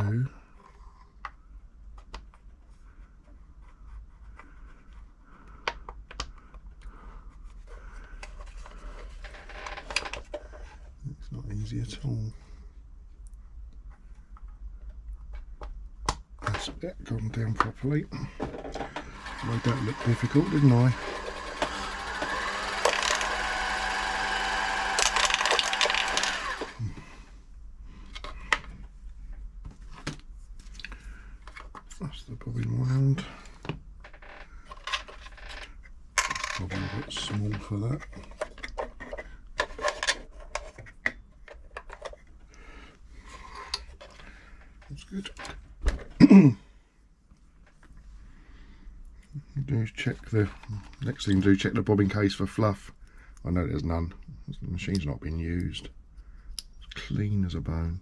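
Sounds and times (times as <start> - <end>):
sewing machine running: 19.0 - 26.9.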